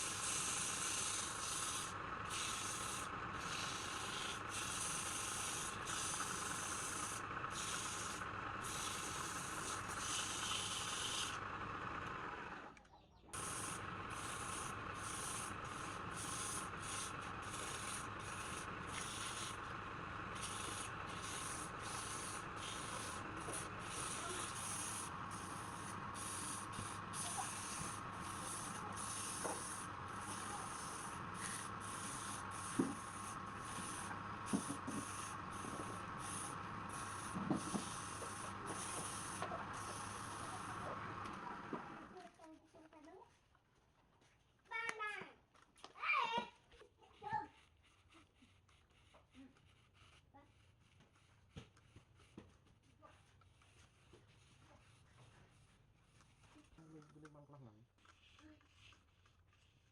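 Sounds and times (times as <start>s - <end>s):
machine hum: 0.0s - 42.2s
sandpaper rubbing on wood: 13.4s - 19.6s, 20.4s - 41.0s.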